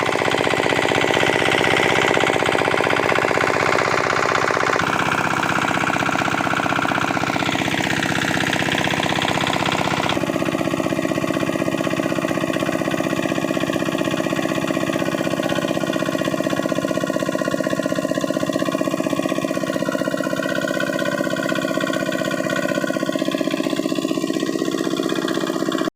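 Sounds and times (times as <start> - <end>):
diesel engine running pump: 0.0 - 25.9.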